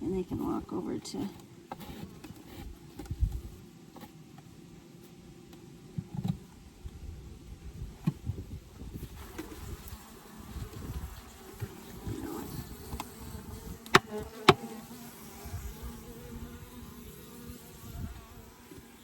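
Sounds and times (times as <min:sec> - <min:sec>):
honeybees buzzing: 0:08.8 - 0:19.0.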